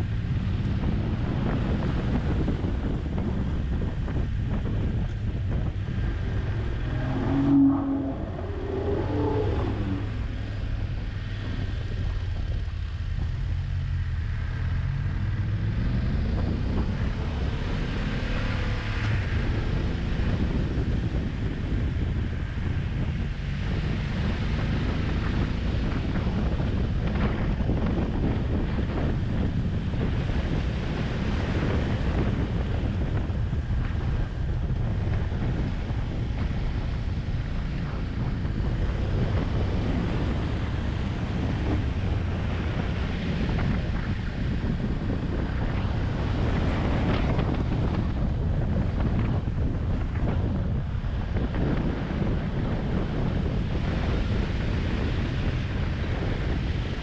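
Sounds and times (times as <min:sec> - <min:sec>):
motorcycle engine accelerating: 0:00.0 - 0:57.0
wind noise on microphone: 0:00.0 - 0:57.0
sound with falling pitch: 0:05.2 - 0:11.0.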